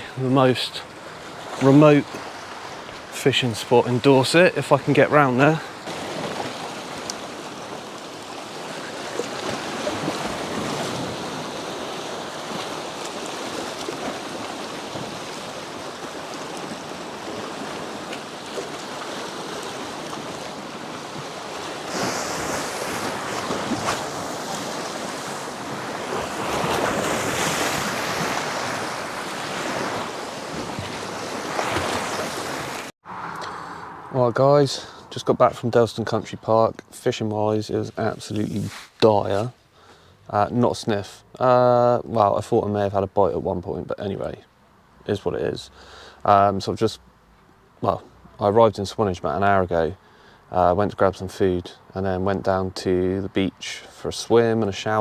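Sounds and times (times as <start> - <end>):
sea waves washing on shore: 0.0 - 35.8, 37.6 - 39.7.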